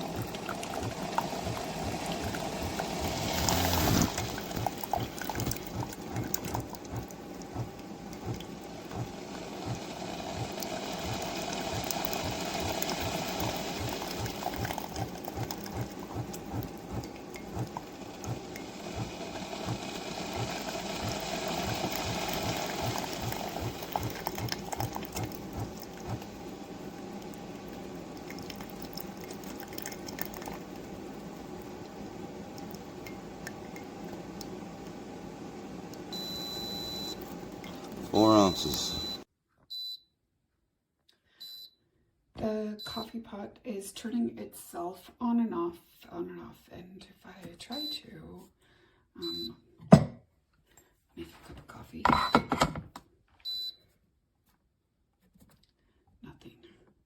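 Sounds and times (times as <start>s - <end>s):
coffee maker pump pulsing: 0.0s - 39.2s
hot water gurgling: 0.0s - 39.2s.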